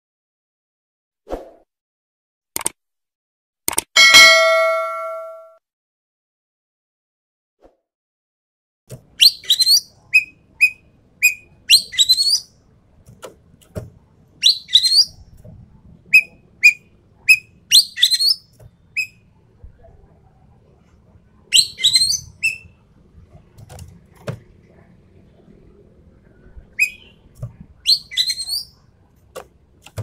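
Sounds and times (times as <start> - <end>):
clear whistled bird notes: 9.2 - 12.5, 14.4 - 15.2, 16.1 - 19.2, 21.5 - 22.8, 26.8 - 27.2, 27.8 - 28.8.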